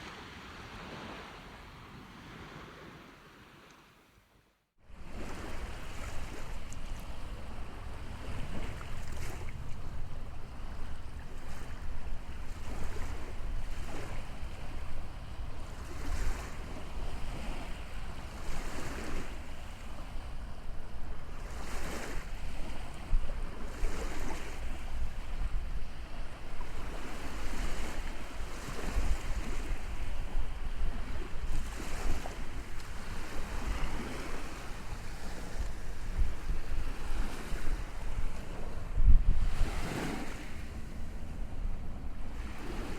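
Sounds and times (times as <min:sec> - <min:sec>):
wind rumbling on microphone: 0:04.9 - 0:42.9.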